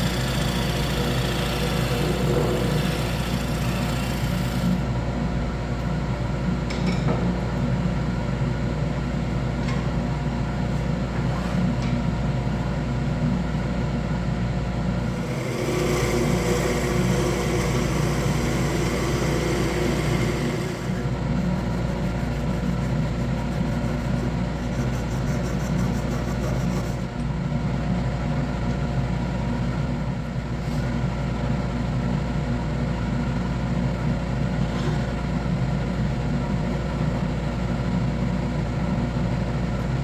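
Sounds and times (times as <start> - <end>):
wood lathe motor hum: 0.0 - 4.9, 15.0 - 27.1.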